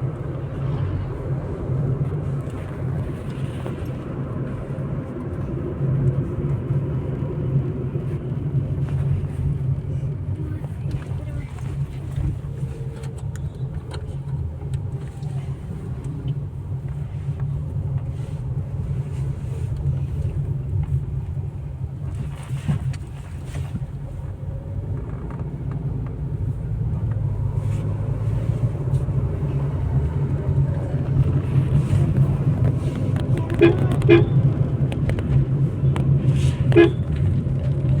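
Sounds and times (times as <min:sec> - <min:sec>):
car engine and road noise: 0:00.0 - 0:38.0.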